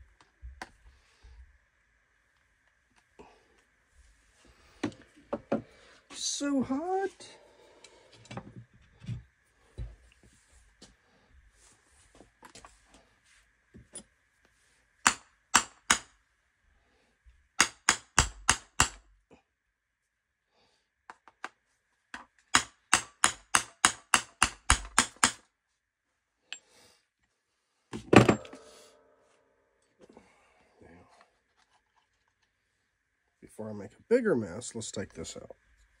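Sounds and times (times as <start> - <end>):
hammer tapping on metal: 22.5 - 25.4
ringing metal clang: 28.2 - 29.3.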